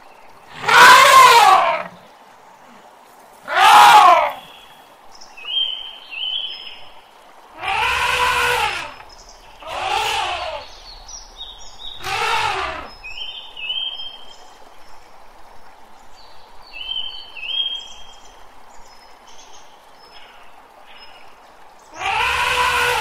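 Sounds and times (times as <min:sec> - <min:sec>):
elephant trumpeting: 0:00.5 - 0:02.0, 0:03.5 - 0:04.4, 0:07.6 - 0:10.9, 0:12.0 - 0:13.0, 0:22.0 - 0:23.0
small birds chirping: 0:07.6 - 0:15.2.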